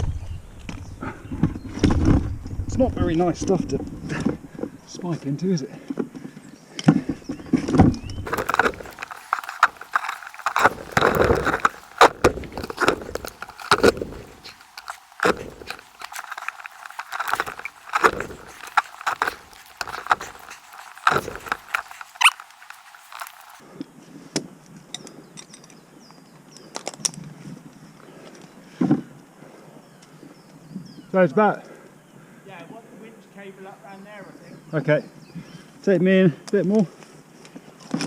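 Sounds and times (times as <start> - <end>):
foliage rustling: 8.2 - 23.6
climbing gear clinking: 8.3 - 23.6
climbing spikes stabbing into trunk: 8.3 - 23.6.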